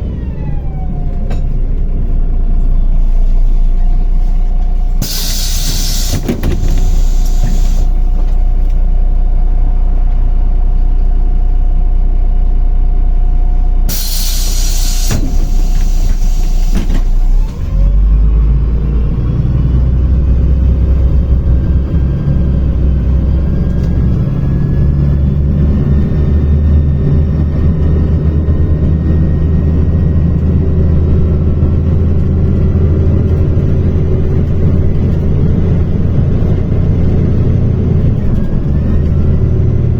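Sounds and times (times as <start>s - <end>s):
bus diesel engine accelerating: 0.0s - 39.9s
pneumatic brakes hissing: 4.9s - 8.1s, 13.9s - 17.8s.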